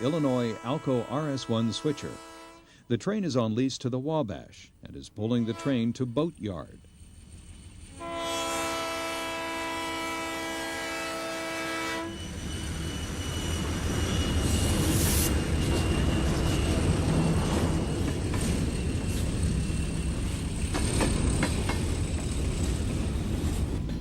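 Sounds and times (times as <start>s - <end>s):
locomotive horn blast: 0.0s - 2.8s, 5.4s - 6.0s, 7.9s - 12.3s
train rumbling past: 5.4s - 24.0s.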